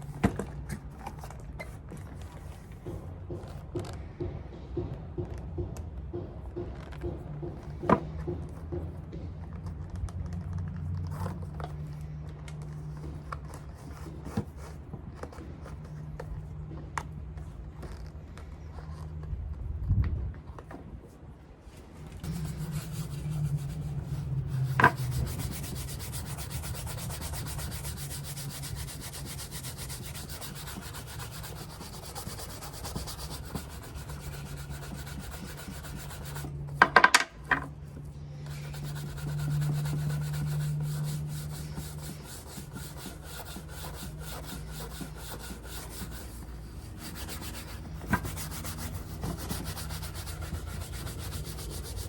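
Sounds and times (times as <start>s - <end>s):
rubbing strokes on leather shoe: 22.2s - 36.7s, 38.5s - 52.0s.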